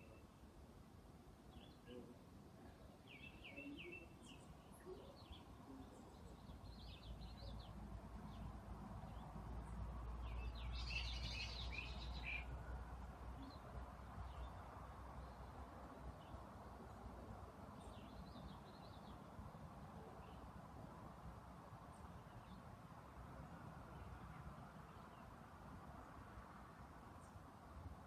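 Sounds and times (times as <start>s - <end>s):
small birds chirping: 2.7s - 12.7s.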